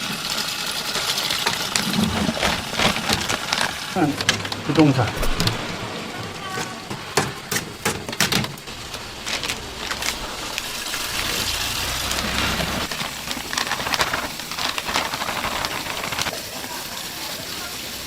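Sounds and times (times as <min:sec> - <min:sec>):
frying oil sizzling: 0:00.0 - 0:18.0
low rumble: 0:08.7 - 0:15.0.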